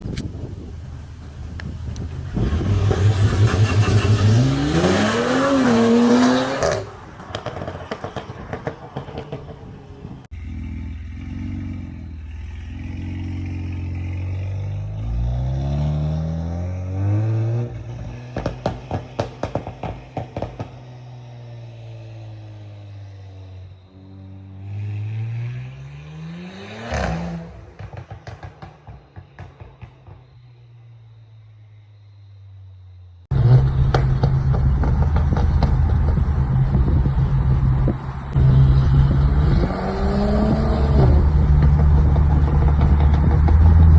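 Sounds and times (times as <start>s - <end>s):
exhaust pops and crackles: 0.0s - 4.7s, 6.6s - 10.3s, 17.9s - 21.0s, 27.6s - 30.4s, 33.3s - 43.9s
car engine accelerating hard: 0.5s - 28.7s, 33.3s - 43.9s.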